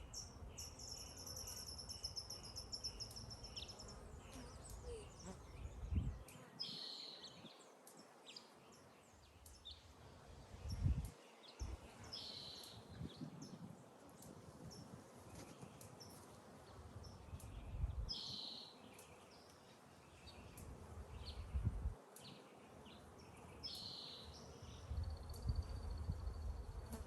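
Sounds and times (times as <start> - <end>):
birds chirping: 0.0 - 9.8
faint outdoor background noise: 0.0 - 27.0.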